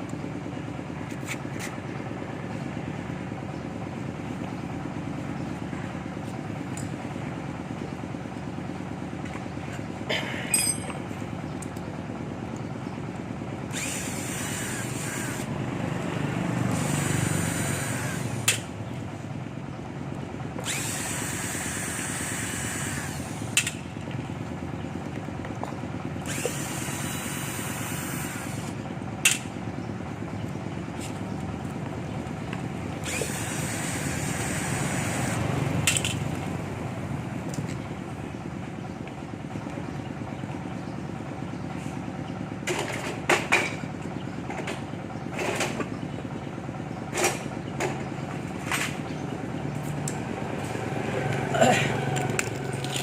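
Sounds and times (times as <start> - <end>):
low workshop noise: 0.0 - 53.0
power tool running in bursts: 13.6 - 18.7, 20.5 - 23.8, 26.1 - 29.4, 32.9 - 36.2.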